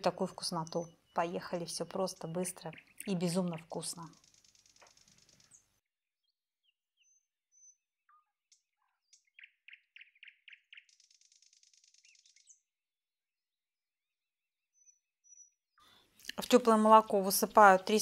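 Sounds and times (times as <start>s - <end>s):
faint bird chirps and whistles: 7.0s - 8.3s.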